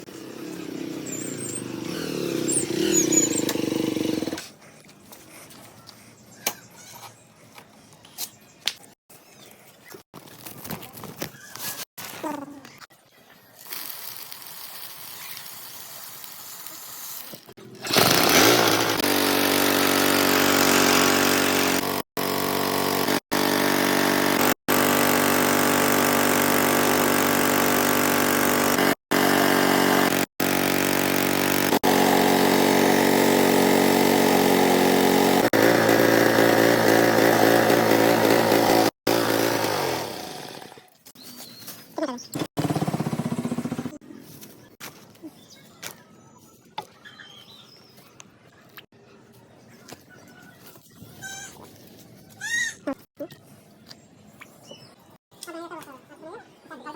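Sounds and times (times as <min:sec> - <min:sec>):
motorcycle engine driving a mill: 0:00.0 - 0:04.5, 0:17.6 - 0:41.1, 0:42.3 - 0:44.0.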